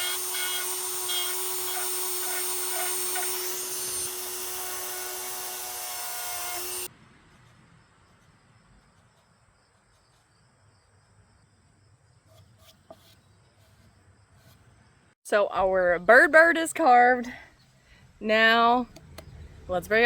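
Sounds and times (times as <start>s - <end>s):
power carving tool grinding wood: 0.0s - 6.9s.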